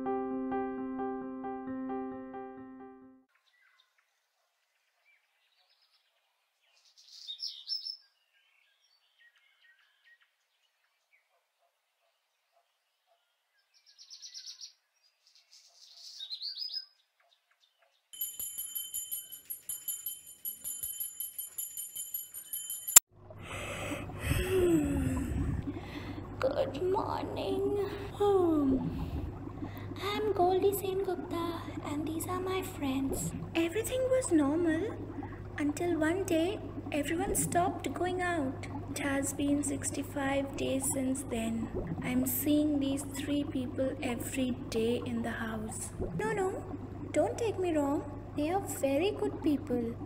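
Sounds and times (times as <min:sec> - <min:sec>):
aquarium air stone bubbling: 0:23.2 - 0:50.0
pump hum: 0:23.2 - 0:50.0.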